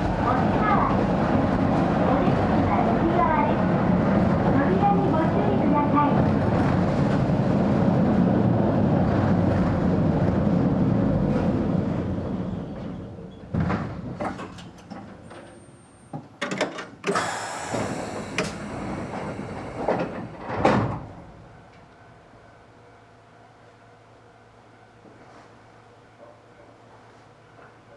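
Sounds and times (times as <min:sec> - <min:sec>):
electric train rumbling: 0:00.0 - 0:25.0
clunks and knocks: 0:13.5 - 0:15.5, 0:16.2 - 0:21.2
air hiss: 0:17.1 - 0:21.1.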